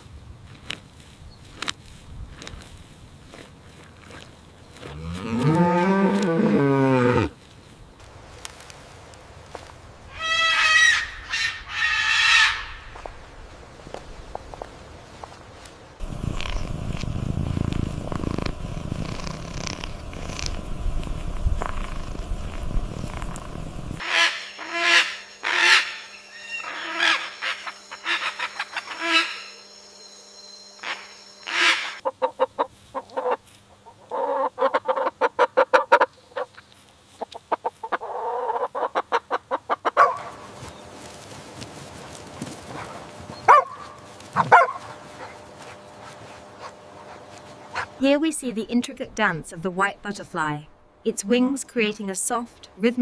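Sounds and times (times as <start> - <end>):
animal calls: 23.0 - 29.8, 30.8 - 33.4.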